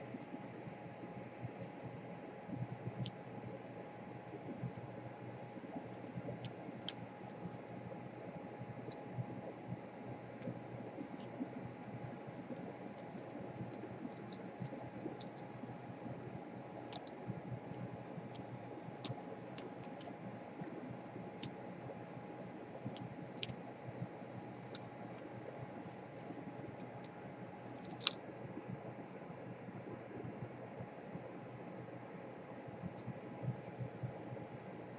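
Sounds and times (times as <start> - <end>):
faint steady hum: 0.0 - 34.9
small tools clicking and tapping: 27.8 - 28.2.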